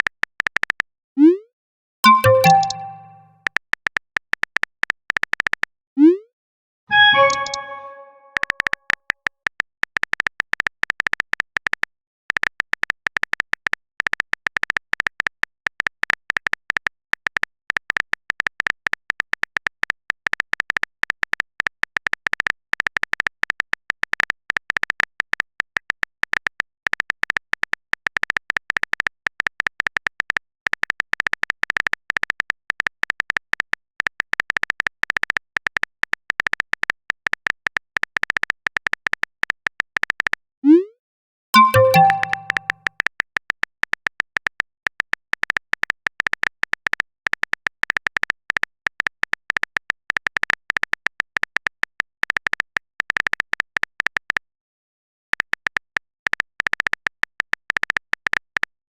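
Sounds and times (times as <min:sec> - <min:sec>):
phone keyboard typing clicks: 0:02.1 - 0:03.3, 0:06.9 - 0:08.5, 0:41.6 - 0:42.7.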